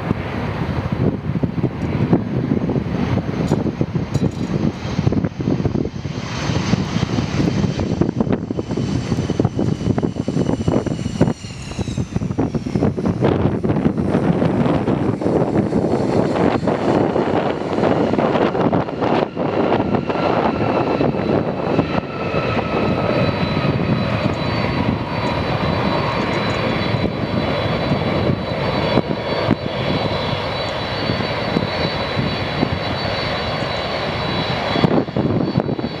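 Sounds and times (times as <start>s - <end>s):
jet engines whining: 0.0s - 36.0s.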